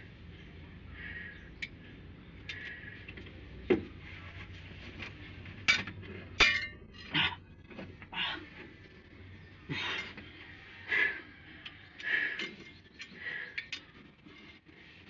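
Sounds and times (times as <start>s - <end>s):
metal tools clinking and knocking: 5.6s - 7.3s.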